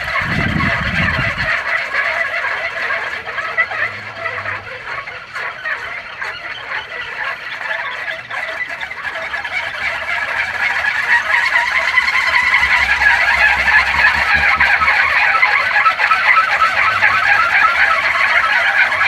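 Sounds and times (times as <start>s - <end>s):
wind-driven propeller whirring: 0.0s - 1.6s, 9.7s - 19.0s.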